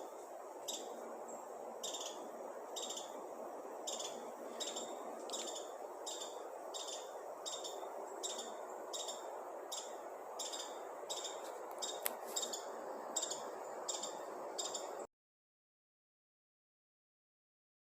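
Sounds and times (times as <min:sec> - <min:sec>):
bird chirping: 0:00.6 - 0:03.2, 0:03.8 - 0:15.0.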